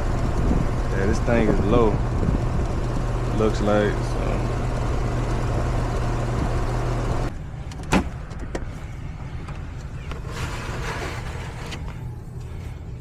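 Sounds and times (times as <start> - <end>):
heat pump humming: 0.0 - 7.7.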